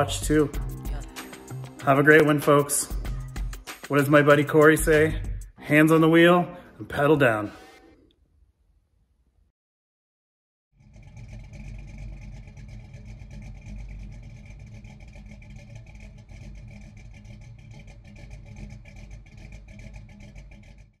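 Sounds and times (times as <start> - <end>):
car engine running: 0.0 - 5.6, 10.8 - 21.0.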